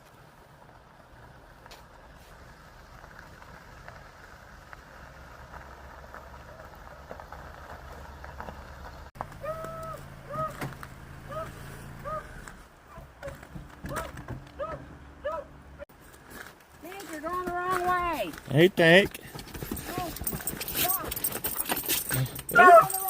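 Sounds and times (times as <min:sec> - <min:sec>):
vehicle humming: 0:00.0 - 0:15.9.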